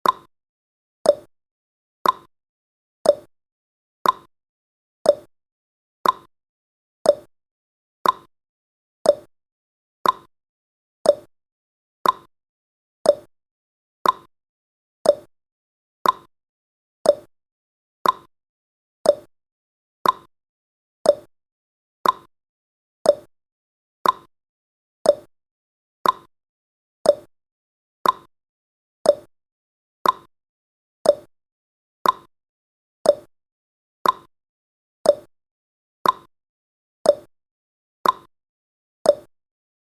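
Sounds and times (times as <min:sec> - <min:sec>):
timer ticking: 0:00.0 - 0:00.3, 0:01.1 - 0:01.3, 0:02.0 - 0:02.3, 0:03.0 - 0:03.3, 0:04.0 - 0:04.3, 0:05.1 - 0:05.3, 0:06.0 - 0:06.3, 0:07.1 - 0:07.3, 0:08.0 - 0:08.3, 0:09.0 - 0:09.3, 0:10.0 - 0:10.3, 0:11.0 - 0:11.3, 0:12.0 - 0:12.3, 0:13.0 - 0:13.3, 0:14.0 - 0:14.3, 0:15.0 - 0:15.3, 0:16.0 - 0:16.3, 0:17.0 - 0:17.3, 0:18.0 - 0:18.3, 0:19.0 - 0:19.3, 0:20.0 - 0:20.3, 0:21.0 - 0:21.3, 0:22.0 - 0:22.3, 0:23.0 - 0:23.3, 0:24.0 - 0:24.3, 0:25.0 - 0:25.3, 0:26.0 - 0:26.3, 0:27.0 - 0:27.3, 0:28.0 - 0:28.3, 0:29.0 - 0:29.3, 0:30.0 - 0:30.3, 0:31.0 - 0:31.3, 0:32.0 - 0:32.3, 0:33.0 - 0:33.3, 0:34.0 - 0:34.3, 0:35.0 - 0:35.3, 0:36.0 - 0:36.3, 0:37.1 - 0:37.3, 0:38.0 - 0:38.3, 0:39.1 - 0:39.3.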